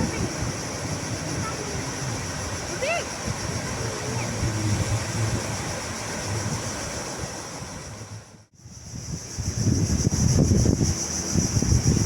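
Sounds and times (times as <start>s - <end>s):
surf washing on a beach: 0.0s - 8.4s
wind buffeting the microphone: 0.0s - 12.0s.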